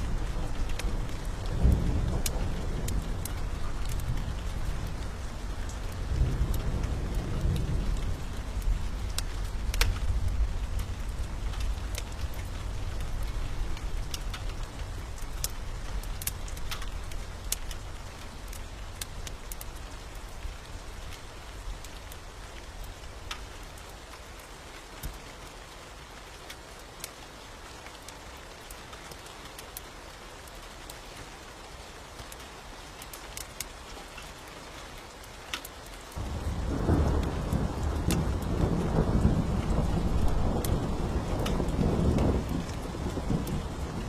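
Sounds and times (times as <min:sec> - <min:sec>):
thunder rumble: 0:00.0 - 0:17.5, 0:36.2 - 0:44.0
wood fire crackling: 0:00.0 - 0:25.3, 0:26.2 - 0:44.0
steady rain: 0:00.0 - 0:44.0.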